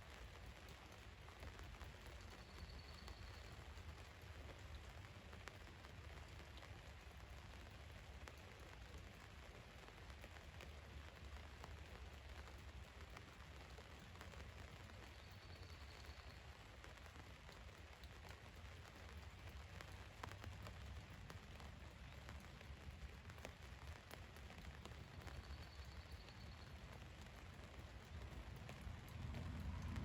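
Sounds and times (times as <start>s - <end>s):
rain on a vehicle roof: 0.0s - 30.0s
low rumble: 28.8s - 30.0s.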